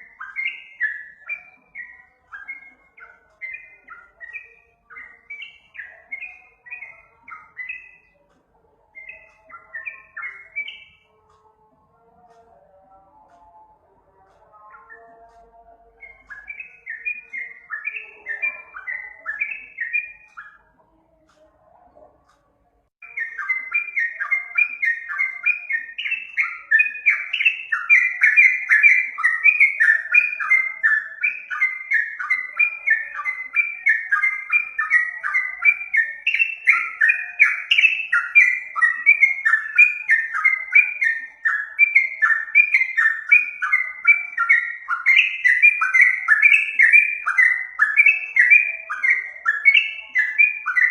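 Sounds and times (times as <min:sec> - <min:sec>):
bulbul chattering song: 0:00.0 - 0:50.9.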